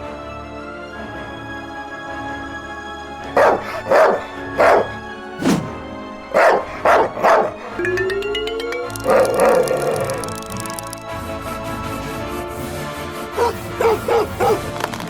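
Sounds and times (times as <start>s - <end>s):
background music: 0.0s - 15.0s
dog barking: 3.3s - 5.0s, 6.3s - 7.6s, 13.4s - 14.7s.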